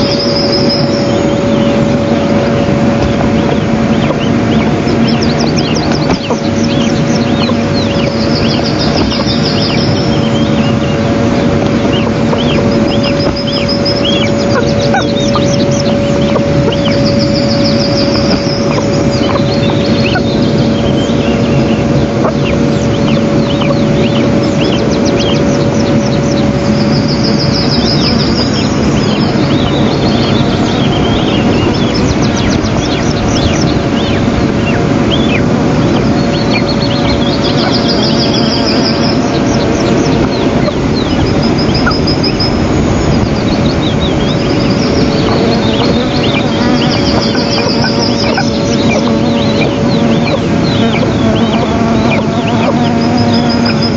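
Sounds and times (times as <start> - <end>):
electrical hum: 0.0 - 53.9
high-pitched bird calls: 0.0 - 53.9.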